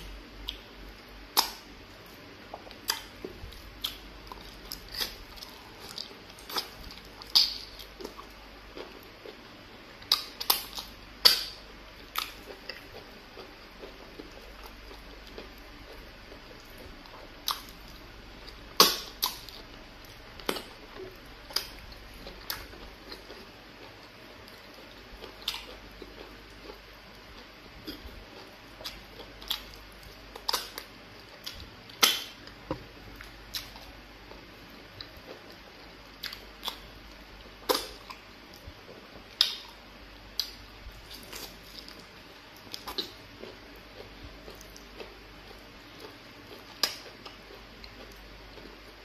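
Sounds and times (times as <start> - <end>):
wet chewing and lip smacks: 40.4 - 48.8.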